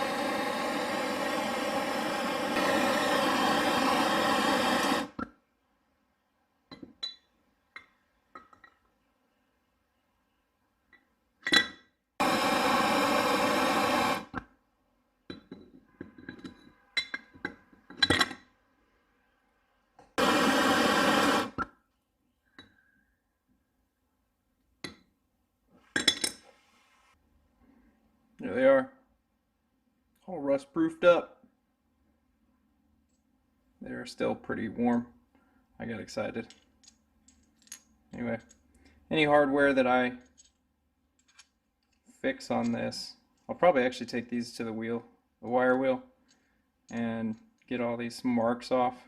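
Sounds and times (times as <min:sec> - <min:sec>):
propane torch burning: 0:00.0 - 0:05.2, 0:12.2 - 0:14.4, 0:20.2 - 0:21.7.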